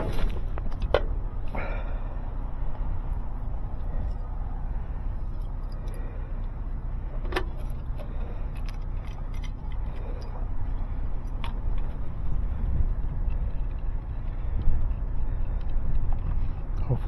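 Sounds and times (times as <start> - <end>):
steady low rumble: 0.0 - 17.0
light clicks and jingles: 3.0 - 4.4, 5.0 - 6.6, 7.3 - 17.0.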